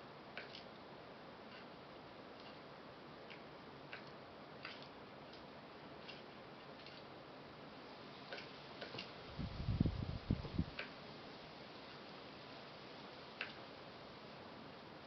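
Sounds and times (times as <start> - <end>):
bird pecking at seeds: 1.5 - 7.1.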